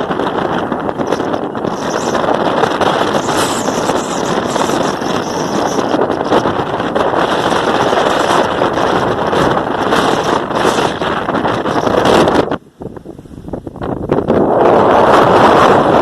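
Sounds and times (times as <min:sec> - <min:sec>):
wind noise on microphone: 0:00.0 - 0:16.0.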